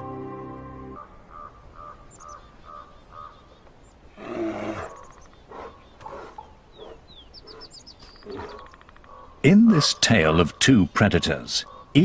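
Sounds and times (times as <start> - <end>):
wild animal roaring: 4.2 - 6.4, 8.2 - 8.7
faint high bird chirps: 4.7 - 10.7.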